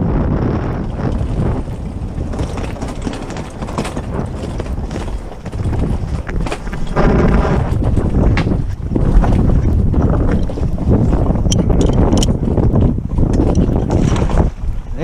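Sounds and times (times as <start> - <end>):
wind buffeting microphone: 0.0 - 15.0
knocks and clicks: 11.4 - 14.4.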